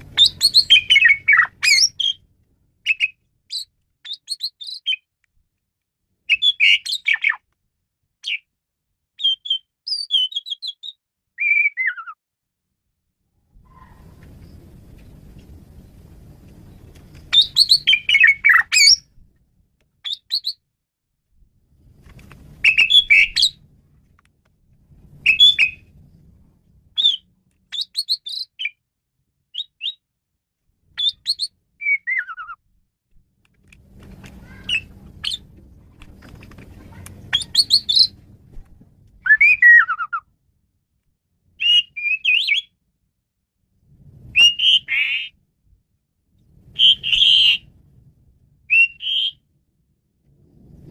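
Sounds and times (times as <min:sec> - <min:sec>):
starling singing: 0:00.1 - 0:02.2, 0:02.9 - 0:05.0, 0:06.3 - 0:07.4, 0:37.3 - 0:38.2.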